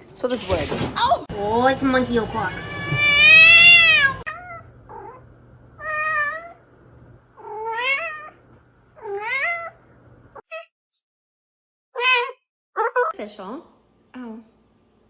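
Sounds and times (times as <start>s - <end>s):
cat meowing: 2.5s - 5.2s, 5.8s - 6.6s, 7.4s - 8.4s, 9.0s - 9.8s, 12.0s - 13.1s.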